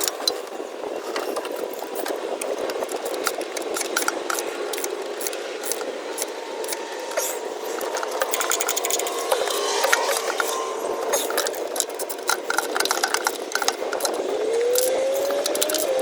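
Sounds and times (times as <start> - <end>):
hand tools clicking and rattling: 0.0 - 16.0
ratchet wrench tightening bolts: 1.2 - 16.0.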